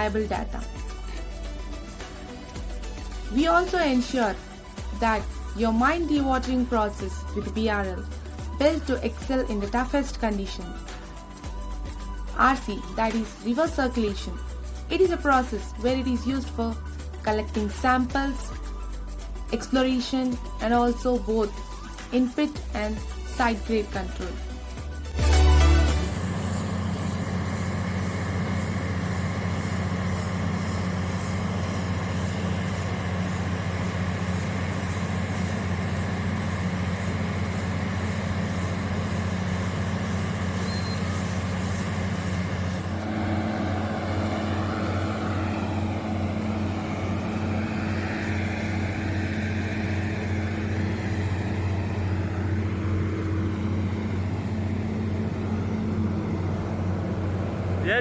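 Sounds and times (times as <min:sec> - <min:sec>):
drilling rig engine hum: 0:00.0 - 0:19.8, 0:20.5 - 0:58.0
steady hum: 0:25.2 - 0:58.0
hiss of noise: 0:25.8 - 0:52.9.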